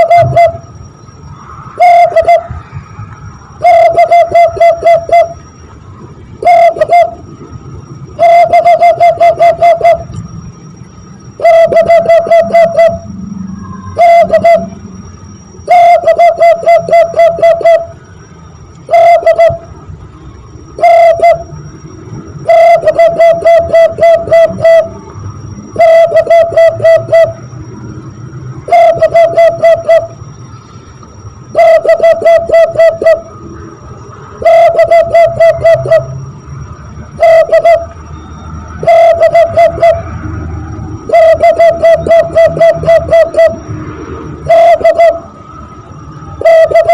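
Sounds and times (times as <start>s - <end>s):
hand whistle cooing call: 0.0s - 0.6s, 1.8s - 2.6s, 3.6s - 5.4s, 6.4s - 7.2s, 8.2s - 10.2s, 11.4s - 14.8s, 15.6s - 18.0s, 18.9s - 19.7s, 20.8s - 21.6s, 22.4s - 25.1s, 25.8s - 27.4s, 28.7s - 30.2s, 31.5s - 33.4s, 34.4s - 36.2s, 37.2s - 40.1s, 41.0s - 43.6s, 44.4s - 45.3s, 46.4s - 46.9s.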